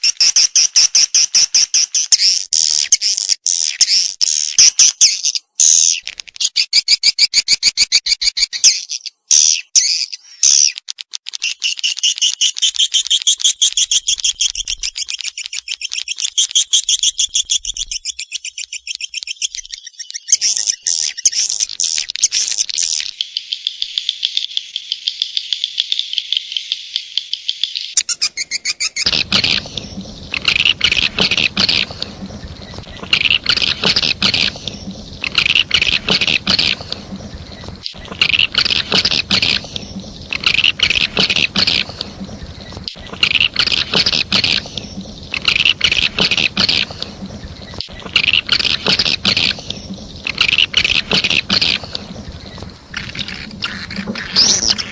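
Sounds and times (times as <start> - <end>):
low hum and hiss: 29.1 - 54.9
swiftlet chirps trilling: 29.1 - 54.9.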